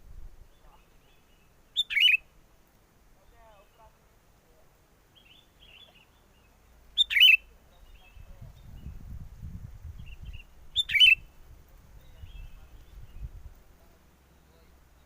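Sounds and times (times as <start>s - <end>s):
wind rumble on microphone: 0.0s - 0.8s, 7.8s - 13.8s
bulbul calling: 0.5s - 2.3s, 5.1s - 8.9s, 10.0s - 11.4s.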